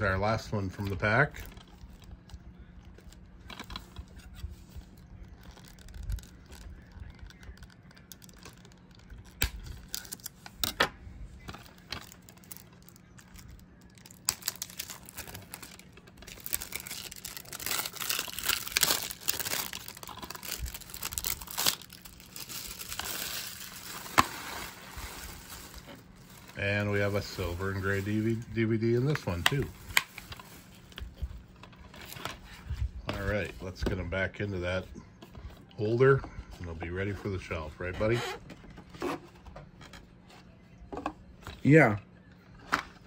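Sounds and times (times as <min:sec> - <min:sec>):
plastic wrap crinkling: 0:00.6 - 0:10.6, 0:11.4 - 0:32.2
clicks and handling noises: 0:00.6 - 0:26.6.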